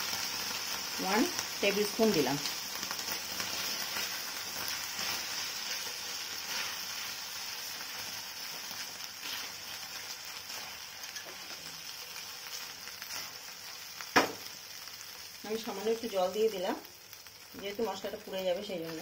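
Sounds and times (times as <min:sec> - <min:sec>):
food sizzling in hot oil: 0:00.0 - 0:19.0
spatula scraping a pan: 0:03.2 - 0:07.3, 0:08.0 - 0:11.7.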